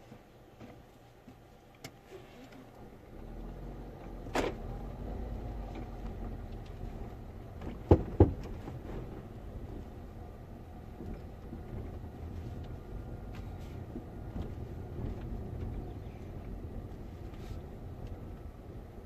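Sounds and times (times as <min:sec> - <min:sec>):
car engine low rumble: 0:00.0 - 0:19.0
suspension clunk: 0:04.0 - 0:18.7
sharp suspension knocks: 0:07.6 - 0:08.7.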